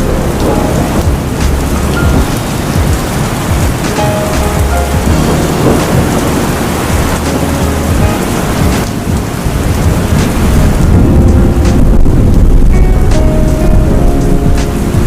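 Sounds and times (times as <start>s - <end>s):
heavy rain falling: 0.0s - 15.0s
low rumble of thunder: 0.0s - 15.0s.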